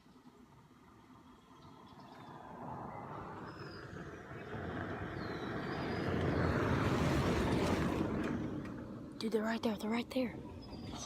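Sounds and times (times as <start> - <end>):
utility vehicle driving: 1.1 - 9.3.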